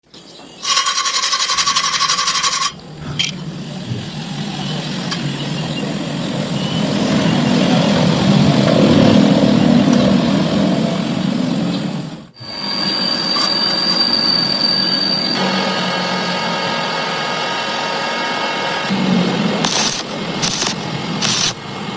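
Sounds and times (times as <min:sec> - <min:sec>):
harsh buzzing burst: 0:00.6 - 0:03.3, 0:15.4 - 0:21.7
welding arc crackling sizzle: 0:19.6 - 0:21.7.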